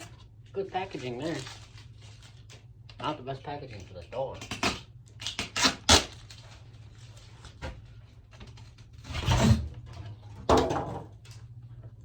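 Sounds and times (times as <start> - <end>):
packing material rustling and scraping: 0.0 - 2.7, 4.4 - 9.6.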